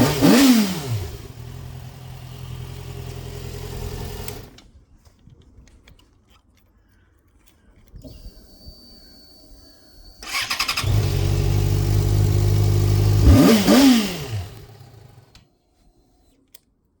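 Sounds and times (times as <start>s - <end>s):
motorcycle engine running and revving: 0.0s - 4.6s, 10.3s - 15.4s
motorcycle engine cranking: 0.0s - 4.7s, 10.0s - 15.4s.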